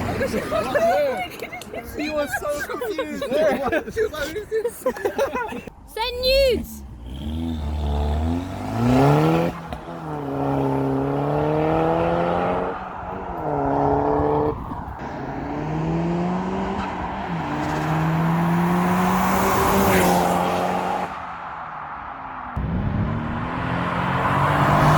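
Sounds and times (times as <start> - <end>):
car engine accelerating: 6.8 - 21.3, 22.4 - 24.9.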